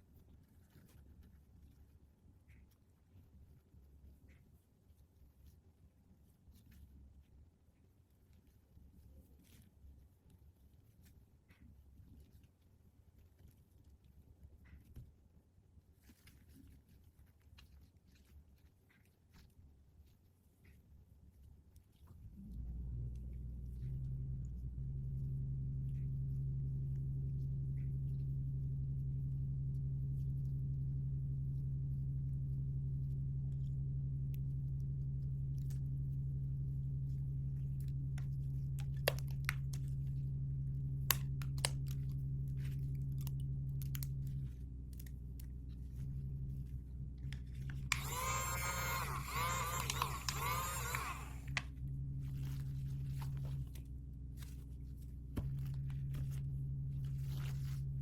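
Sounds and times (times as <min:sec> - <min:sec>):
low electrical hum: 0:00.0 - 0:58.0
plastic packaging clicks and crunches: 0:38.8 - 0:39.9.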